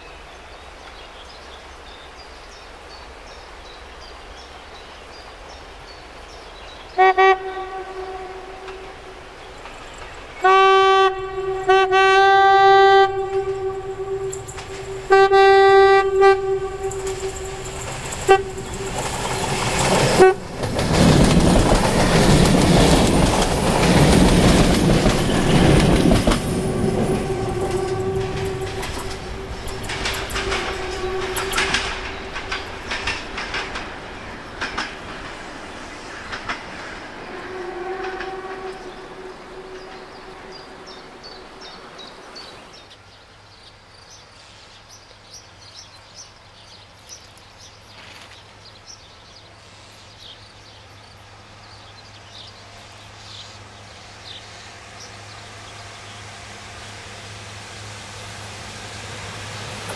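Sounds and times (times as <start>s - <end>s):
train rushing past: 3.1s - 43.0s, 48.8s - 59.9s
train horn: 6.9s - 9.3s, 10.4s - 20.7s, 25.3s - 33.5s, 37.2s - 41.8s
wheels clicking over rail joints: 8.6s - 10.4s, 13.1s - 42.0s.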